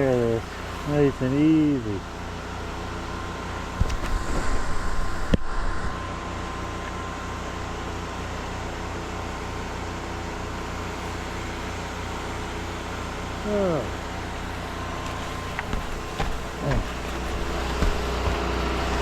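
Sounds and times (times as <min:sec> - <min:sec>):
generator and spray pump engine drone: 0:00.0 - 0:19.0
rough handling noise: 0:14.5 - 0:19.0.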